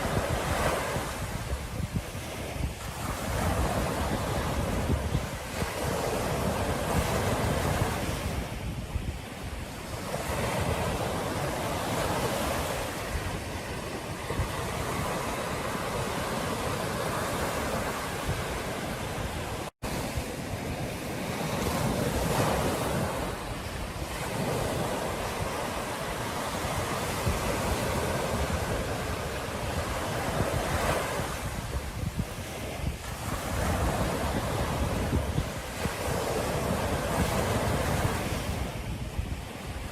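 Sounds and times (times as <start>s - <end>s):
ocean surf washing onto beach: 0.0s - 39.9s
wind rumbling on microphone: 0.0s - 39.9s.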